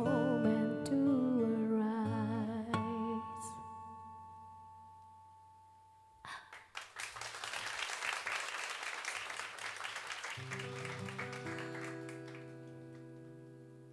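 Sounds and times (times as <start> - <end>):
audience applause: 6.3 - 13.0.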